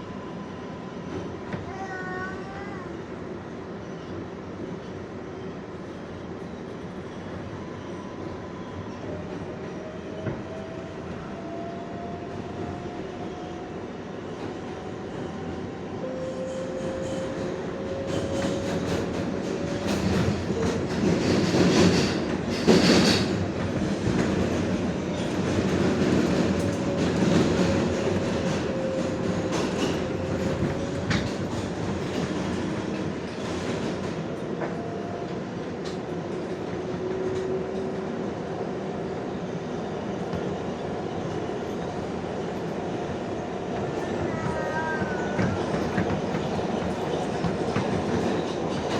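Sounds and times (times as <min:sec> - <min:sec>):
subway wheels rumbling on rails: 0:00.0 - 0:48.9
clickety-clack over rail joints: 0:16.5 - 0:38.2, 0:39.8 - 0:48.9.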